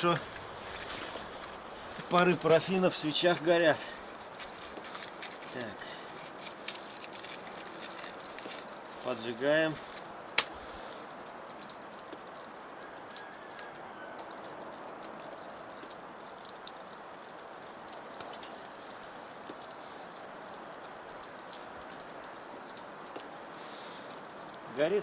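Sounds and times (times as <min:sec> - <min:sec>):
fire hissing and crackling: 0:00.0 - 0:11.8, 0:21.4 - 0:25.0.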